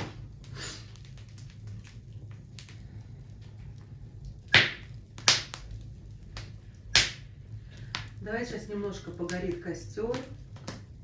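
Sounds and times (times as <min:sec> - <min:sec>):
bonfire crackling: 0:00.0 - 0:11.0
sharp loud fire pops: 0:04.5 - 0:05.6.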